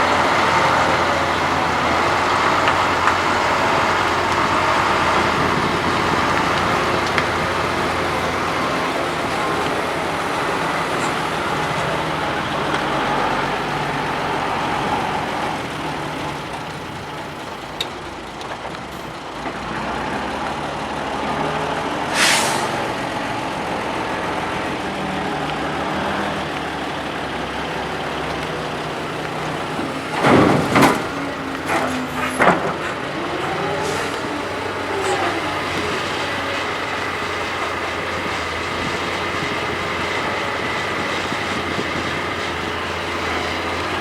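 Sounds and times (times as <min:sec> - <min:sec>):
heavy diesel machinery running: 0:00.0 - 0:44.0
short hiss of air: 0:22.1 - 0:22.8
loud knocks and thuds: 0:29.8 - 0:33.0.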